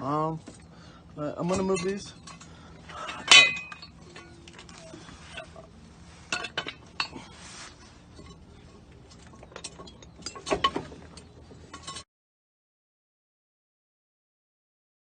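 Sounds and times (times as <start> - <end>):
metal tools clinking and clanking: 0.3 - 12.0.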